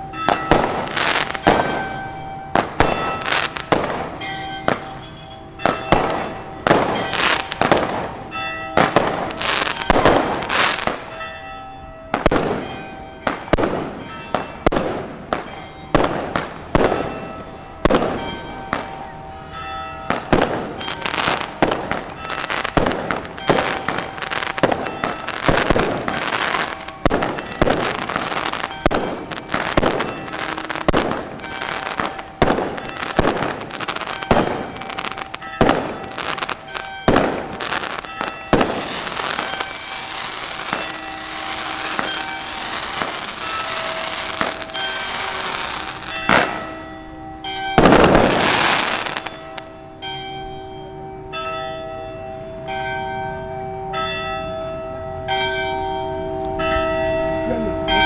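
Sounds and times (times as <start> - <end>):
fireworks bursting with loud bangs: 0.3 - 8.2, 8.8 - 11.1, 12.1 - 17.2, 17.8 - 19.0, 20.1 - 46.8, 47.8 - 49.7.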